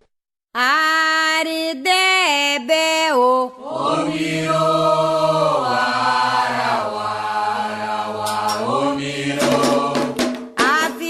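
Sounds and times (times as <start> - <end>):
voices singing a chant: 3.2 - 11.0
sharp percussion strikes: 8.2 - 11.0.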